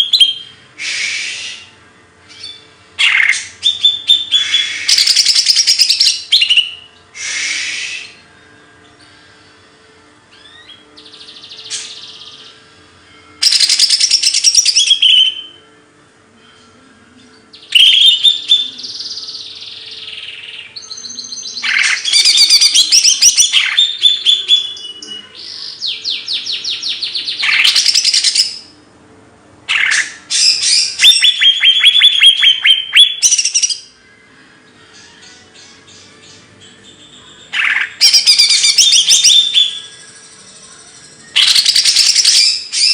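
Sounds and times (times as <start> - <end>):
faint steady hum: 0.0 - 42.8
songbird singing trills: 2.3 - 8.3, 13.4 - 15.6, 17.2 - 28.8, 29.7 - 34.0, 34.9 - 42.9.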